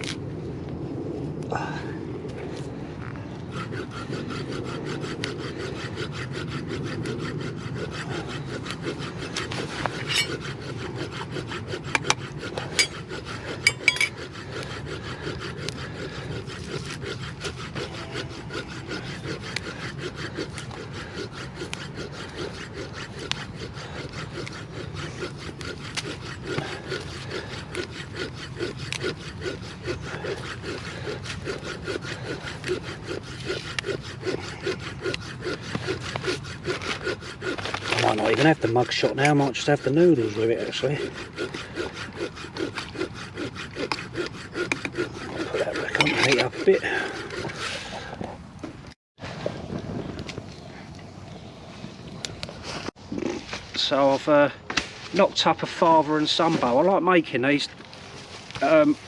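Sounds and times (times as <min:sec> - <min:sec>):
hand saw rasping wood: 0:03.4 - 0:49.0, 0:53.8 - 0:59.0.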